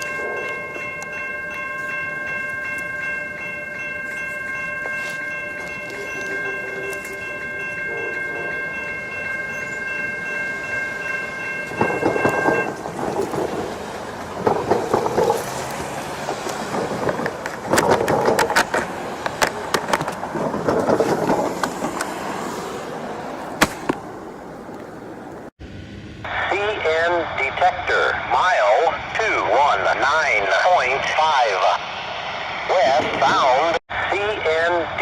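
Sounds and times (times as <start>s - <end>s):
held chord of steady tones: 0.0s - 12.8s
train wheels rumbling on rails: 0.0s - 23.5s
sharp clicks and knocks of train cars: 11.6s - 22.6s.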